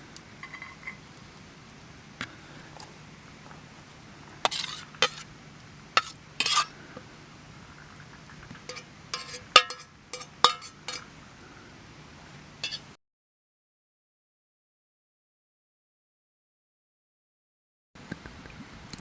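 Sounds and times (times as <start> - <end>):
metal utensils clinking on cookware: 0.4 - 1.0, 4.5 - 5.3, 6.0 - 6.8, 8.6 - 11.1, 12.6 - 13.0.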